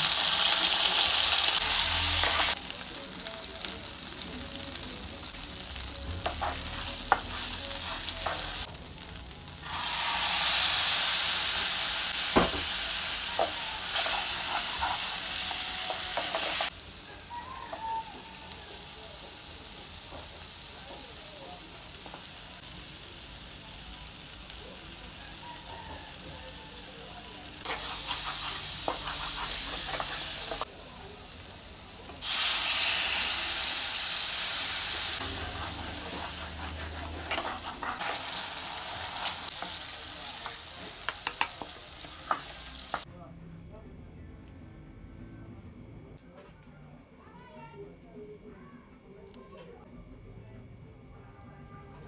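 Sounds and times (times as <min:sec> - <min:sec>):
paste sizzling in hot oil: 0:00.0 - 0:04.6, 0:05.4 - 0:21.1, 0:27.6 - 0:30.7, 0:31.4 - 0:43.1
wooden spatula scraping pan: 0:35.4 - 0:38.4.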